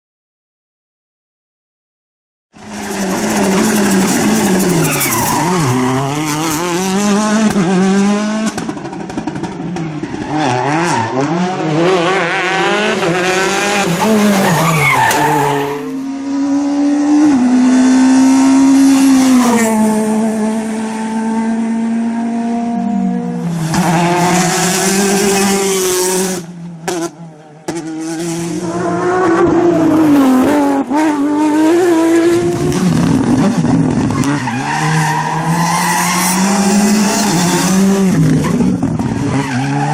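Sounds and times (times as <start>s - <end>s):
rally car engine revving: 2.6s - 39.9s
tyre squeal: 2.7s - 6.6s.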